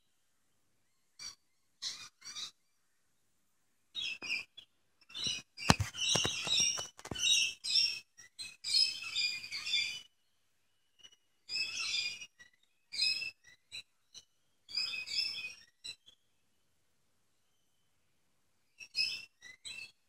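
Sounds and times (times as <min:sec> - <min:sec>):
songbird chirping: 0:03.9 - 0:07.9
microphone handling knocks: 0:05.7 - 0:07.2.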